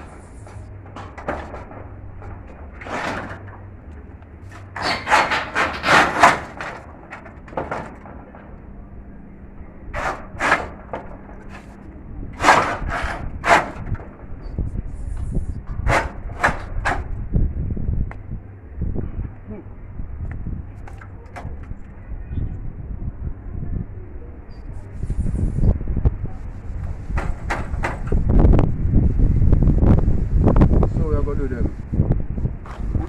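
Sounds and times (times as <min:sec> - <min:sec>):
wooden knocks and scrapes: 0:00.0 - 0:08.6, 0:09.9 - 0:11.8, 0:12.4 - 0:17.2, 0:26.7 - 0:28.4, 0:32.6 - 0:33.0.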